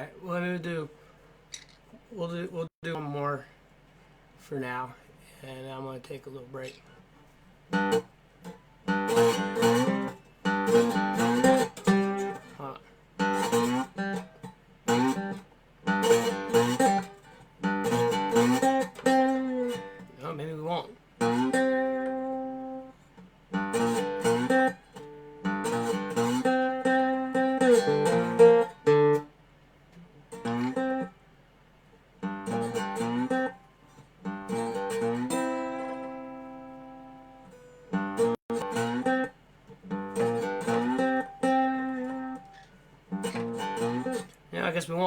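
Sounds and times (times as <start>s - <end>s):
resonator guitar ringing notes: 34.3s - 39.3s.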